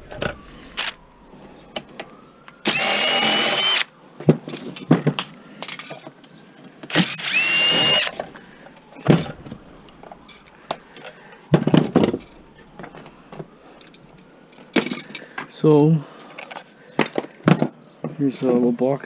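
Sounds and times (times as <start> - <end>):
power drill motor whine: 0.0 - 3.9, 6.9 - 10.5.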